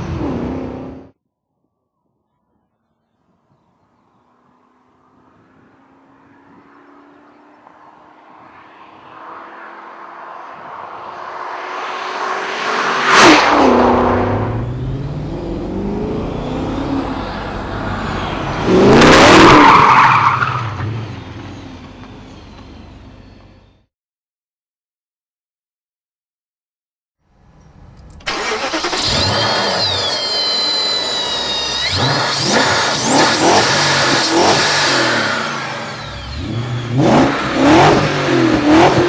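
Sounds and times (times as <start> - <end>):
car engine passing at speed: 3.3 - 21.2.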